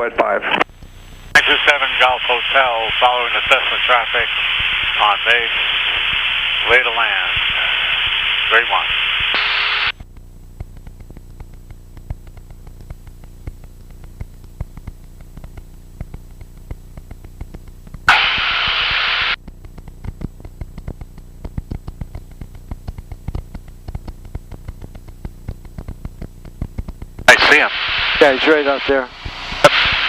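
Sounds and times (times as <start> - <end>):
radio hiss: 0.0 - 10.0, 14.8 - 30.0
static clicks: 0.4 - 30.0.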